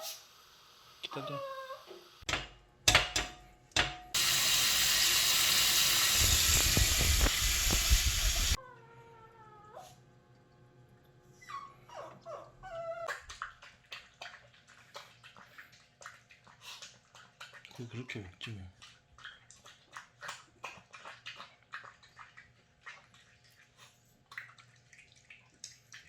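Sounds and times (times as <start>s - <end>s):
dog whining: 1.1s - 2.0s, 11.4s - 13.2s.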